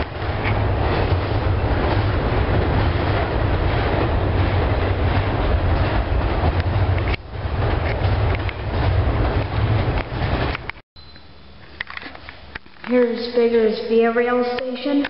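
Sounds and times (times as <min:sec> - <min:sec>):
freight train rumbling past: 0:00.0 - 0:10.8.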